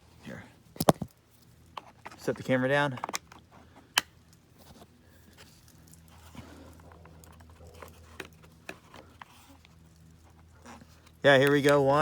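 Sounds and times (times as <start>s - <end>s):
low steady hum: 0.0s - 12.0s
hands clicking and scraping on vent cover: 2.9s - 11.9s.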